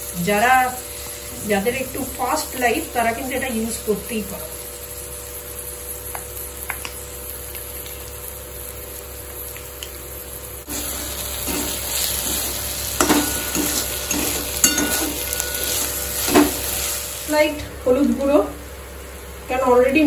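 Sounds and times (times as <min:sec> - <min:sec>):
onions sizzling in oil: 0:00.0 - 0:20.0
metal spatula scraping pan: 0:11.4 - 0:17.0.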